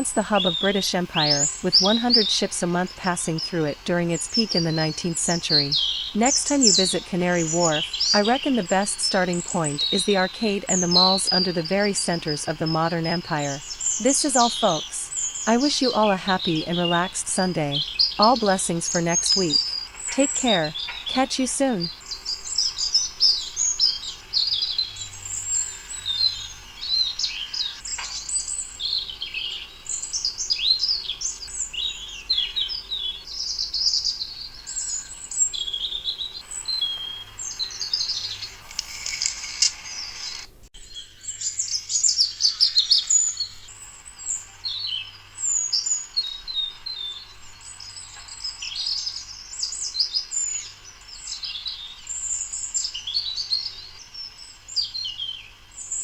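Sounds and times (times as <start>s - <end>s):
songbirds chirping and singing: 0.0s - 39.1s.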